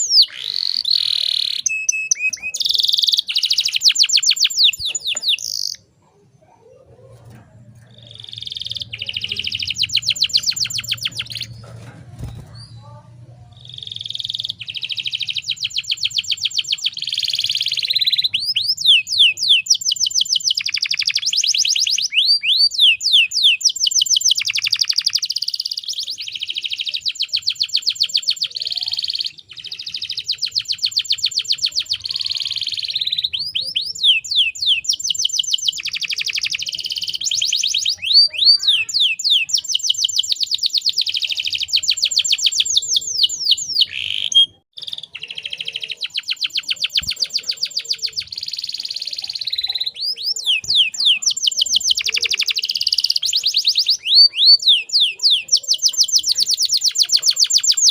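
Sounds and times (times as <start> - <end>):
canary singing trills: 0.0 - 57.9.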